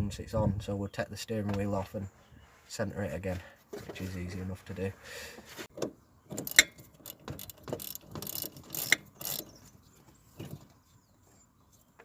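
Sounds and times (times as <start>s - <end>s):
ratchet wrench clicking: 6.4s - 9.5s.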